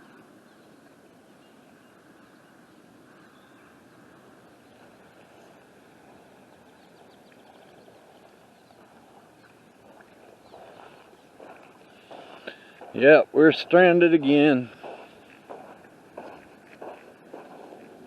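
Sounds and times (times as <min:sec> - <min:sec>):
floodwater rushing: 0:04.8 - 0:18.0.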